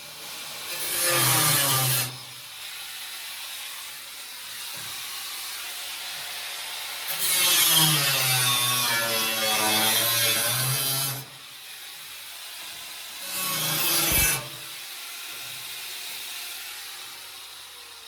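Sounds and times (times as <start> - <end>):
power tool humming: 0.0 - 18.0
loud scraping burst: 13.2 - 14.7.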